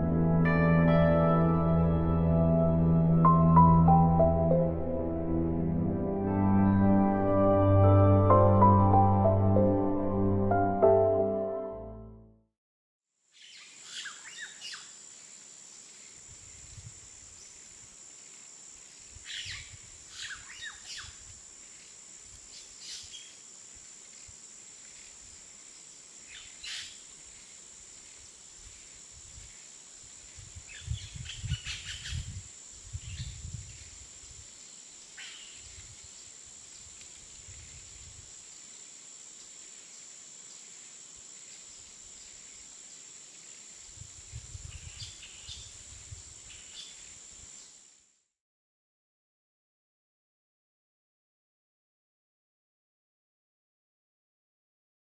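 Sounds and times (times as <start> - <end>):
steady hiss: 13.4 - 48.2.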